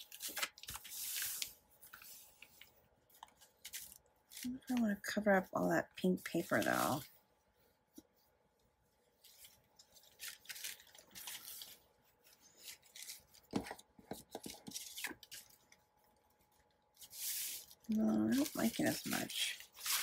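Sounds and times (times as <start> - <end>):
paper rustling: 0.0 - 4.8, 8.9 - 20.0.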